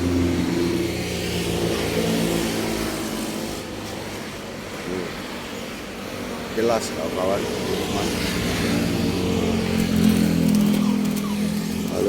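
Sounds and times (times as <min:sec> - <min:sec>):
vehicle engine running: 0:08.0 - 0:12.0.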